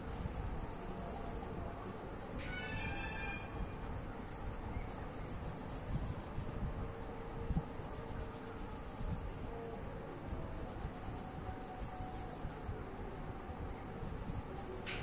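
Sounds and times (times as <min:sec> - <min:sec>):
colouring tool scratching on paper: 0:00.0 - 0:03.6, 0:04.2 - 0:06.7, 0:07.4 - 0:09.6, 0:10.3 - 0:12.8, 0:13.8 - 0:15.0.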